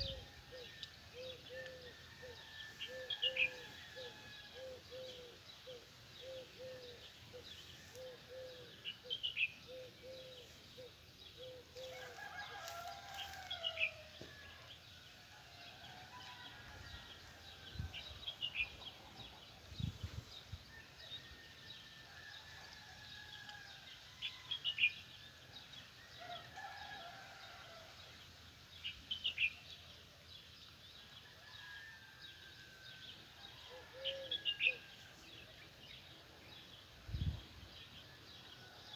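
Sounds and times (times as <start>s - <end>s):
distant rooster crowing: 0.0s - 5.2s, 11.8s - 18.6s, 26.0s - 28.0s, 31.3s - 34.9s.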